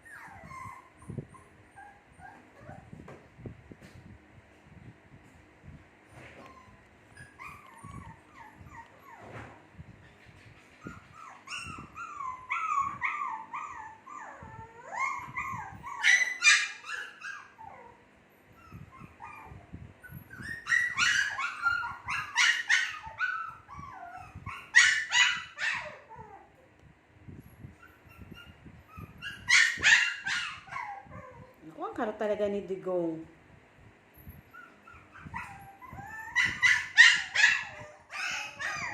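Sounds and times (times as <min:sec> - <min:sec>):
puppies whimpering and yipping: 0:00.0 - 0:03.0, 0:06.1 - 0:26.7, 0:27.5 - 0:31.6, 0:34.2 - 0:38.9.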